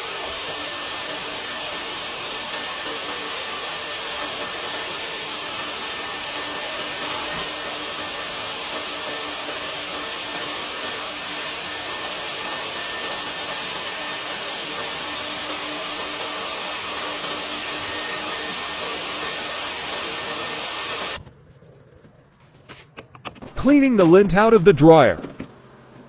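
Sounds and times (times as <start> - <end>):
vacuum rushing hiss: 0.0 - 21.2.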